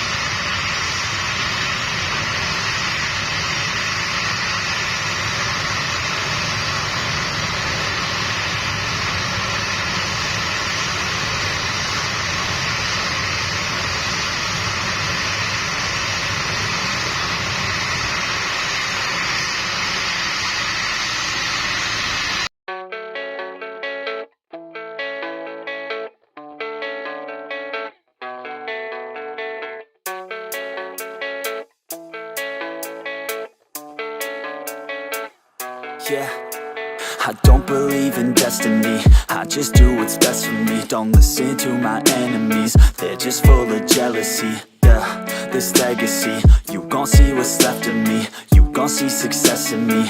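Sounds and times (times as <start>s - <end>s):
guitar music: 22.7s - 50.0s.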